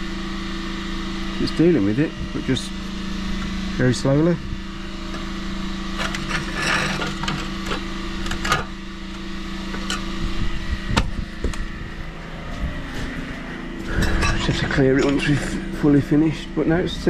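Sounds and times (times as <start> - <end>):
pressure washer engine idling: 0.0 - 17.0
scraping on hard surface: 6.0 - 7.8.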